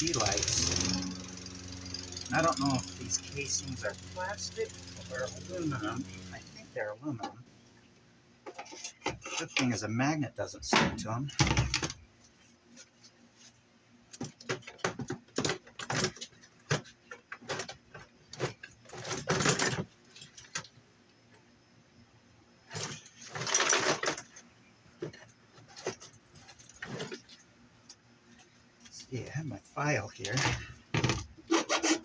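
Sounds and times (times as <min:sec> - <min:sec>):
metal parts and tools clinking: 0:00.0 - 0:06.4.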